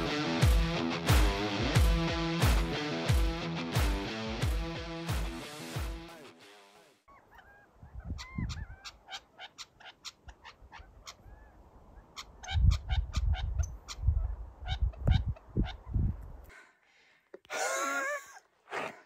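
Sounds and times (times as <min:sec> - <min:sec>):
bird calling: 0:07.1 - 0:15.9.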